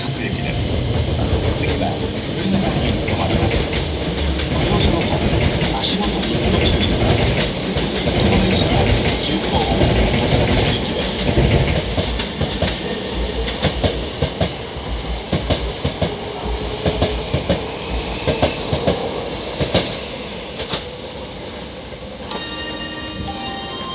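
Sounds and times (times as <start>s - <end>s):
train wheels clacking over joints: 0.6s - 14.6s.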